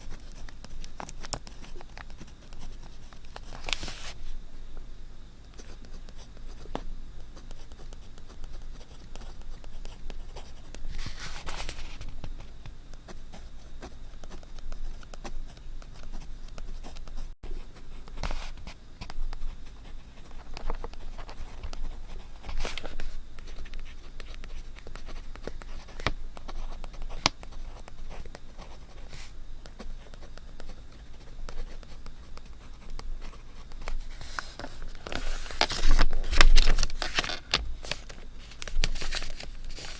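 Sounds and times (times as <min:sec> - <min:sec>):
hands and tools on paper: 0:00.0 - 0:04.2, 0:05.6 - 0:17.1, 0:18.0 - 0:39.9
paper rustle: 0:03.3 - 0:04.2, 0:10.9 - 0:12.2, 0:33.6 - 0:39.9.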